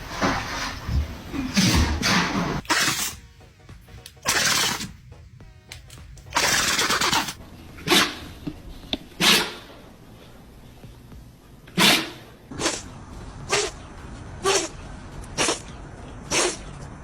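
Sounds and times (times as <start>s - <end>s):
dog sneezing: 1.3s - 3.2s, 4.3s - 4.9s, 6.4s - 8.3s, 9.2s - 9.7s, 11.7s - 12.9s, 13.5s - 13.8s, 14.4s - 14.8s, 15.4s - 15.7s, 16.3s - 16.7s.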